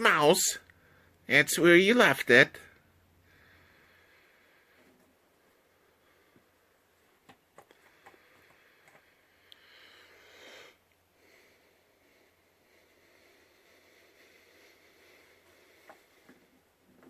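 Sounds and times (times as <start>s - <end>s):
faint clicks: 7.2s - 9.7s.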